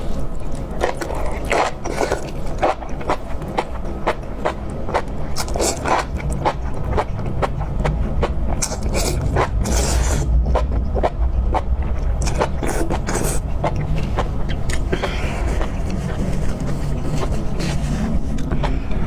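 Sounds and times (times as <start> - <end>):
person chewing crunchy food: 0.0 - 19.0
wet mouth sounds: 0.4 - 19.0
low rumble: 6.1 - 19.0.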